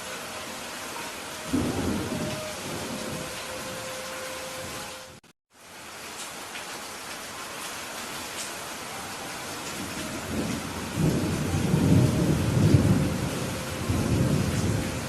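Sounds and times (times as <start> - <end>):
steady rain: 0.0 - 15.0
thunder rumbling: 1.4 - 5.2, 9.7 - 15.0.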